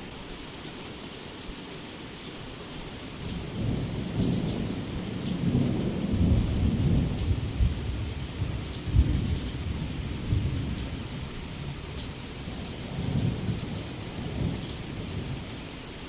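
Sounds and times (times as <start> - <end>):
heavy rain falling: 0.0 - 16.0
rolling thunder rumble: 3.2 - 15.6.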